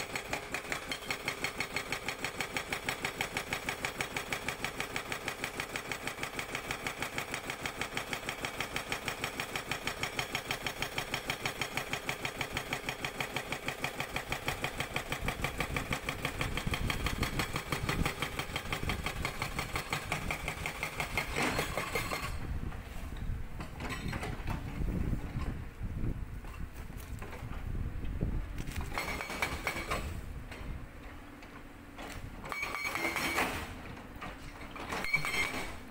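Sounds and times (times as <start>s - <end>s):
hydraulic breaker hammering rock: 0.0s - 22.5s, 28.9s - 30.2s, 32.0s - 33.9s, 34.5s - 35.9s
excavator diesel engine: 0.0s - 35.9s.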